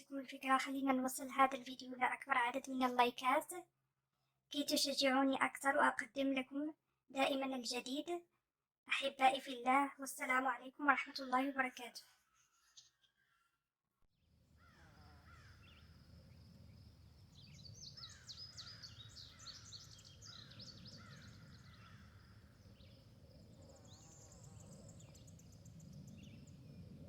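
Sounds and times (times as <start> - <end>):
birds chirping: 14.6 - 27.0.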